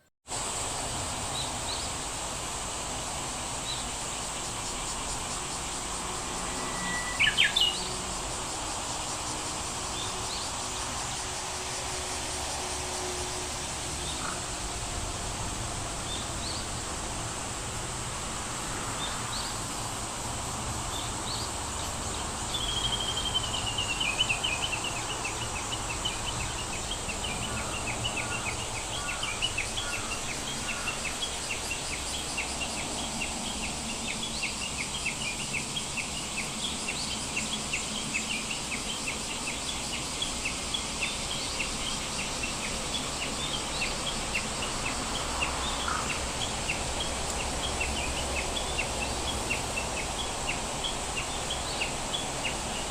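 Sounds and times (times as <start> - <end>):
steady high-pitched hiss: 0.0 - 52.9
bird chirping quickly: 6.6 - 7.9.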